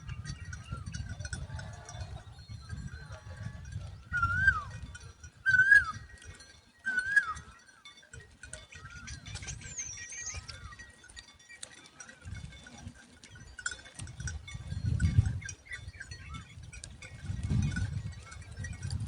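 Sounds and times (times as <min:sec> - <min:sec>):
bird wavering calls: 0:04.2 - 0:04.7, 0:05.5 - 0:06.1, 0:06.9 - 0:07.7, 0:09.6 - 0:10.6.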